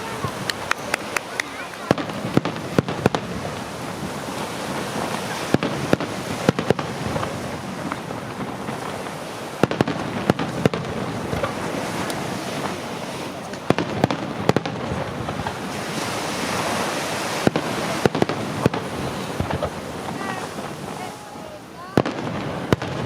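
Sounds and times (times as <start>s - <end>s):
firework bangs: 0.0s - 23.0s
fireworks crackling: 0.0s - 23.0s.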